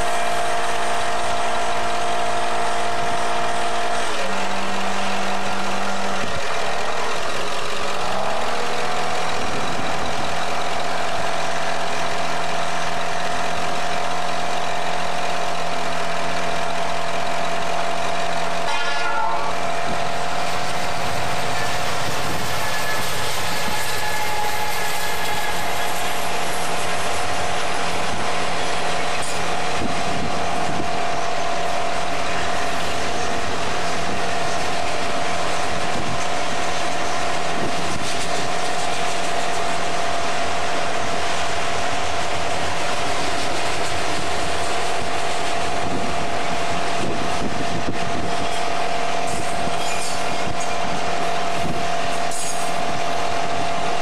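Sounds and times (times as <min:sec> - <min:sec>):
train wheels rumbling on rails: 0:00.0 - 0:54.0
steady high tone: 0:18.4 - 0:36.1.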